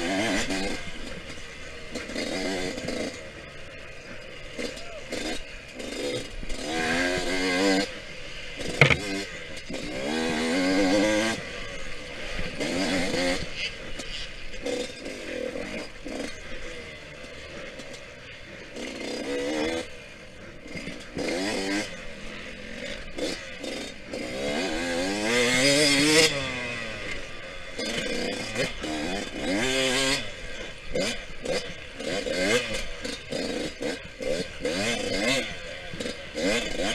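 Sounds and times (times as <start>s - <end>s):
dirt bike engine revving: 0.0s - 36.9s
sharp knock: 8.8s - 9.0s.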